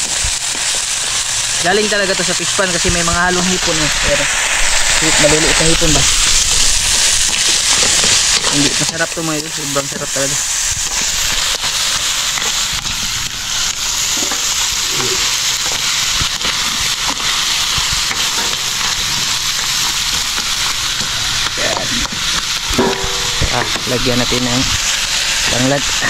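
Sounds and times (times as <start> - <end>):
crabs sizzling in a wok: 0.0 - 26.0.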